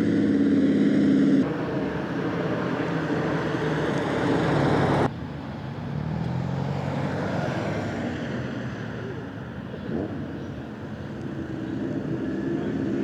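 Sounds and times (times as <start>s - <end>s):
loud sports car engine: 0.0s - 13.0s
quieter car engine: 0.0s - 13.0s.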